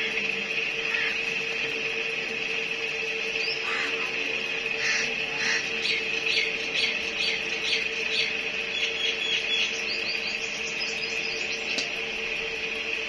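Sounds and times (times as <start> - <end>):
steady high-pitched tone: 0.0 - 13.0
birds chirping: 3.2 - 12.0.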